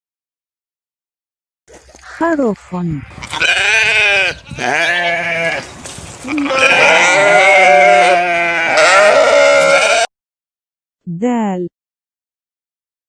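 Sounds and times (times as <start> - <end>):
sheep bleating: 3.1 - 10.1.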